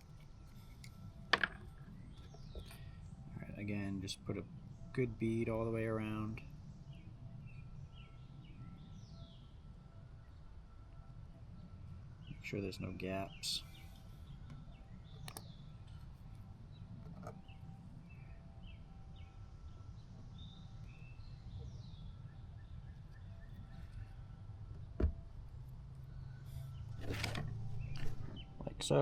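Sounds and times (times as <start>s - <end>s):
low steady hum: 0.0s - 29.0s
faint bird chirps: 6.2s - 25.0s.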